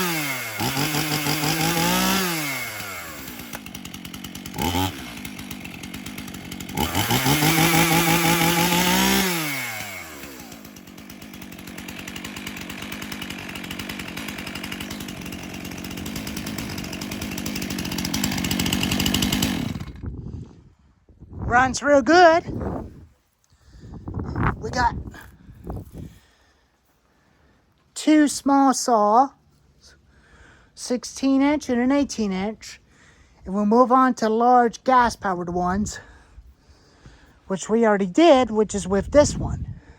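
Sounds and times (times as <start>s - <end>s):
chainsaw idling and revving: 0.0s - 20.2s.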